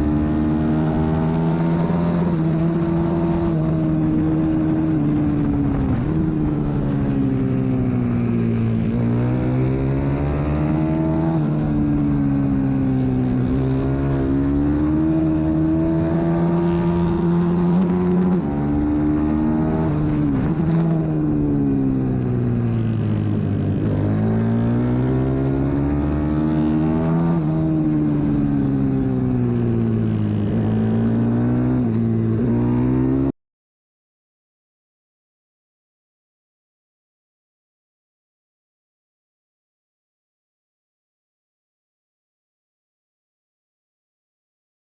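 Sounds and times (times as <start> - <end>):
motorbike engine revving: 0.0 - 33.3.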